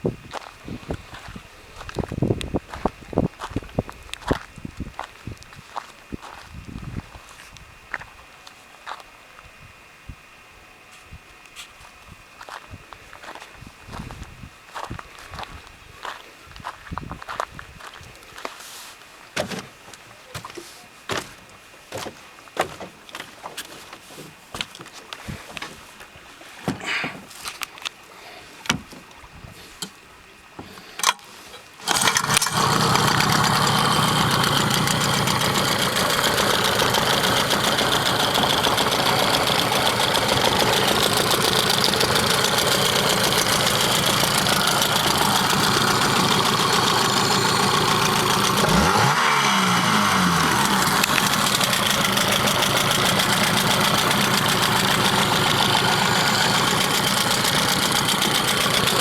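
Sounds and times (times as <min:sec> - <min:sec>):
outboard motor running: 0:31.8 - 0:59.0.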